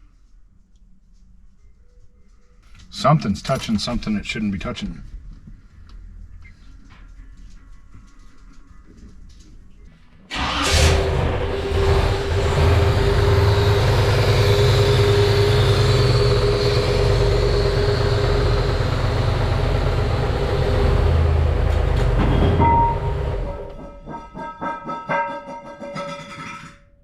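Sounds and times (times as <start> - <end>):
car engine running loudly: 10.3 - 23.6.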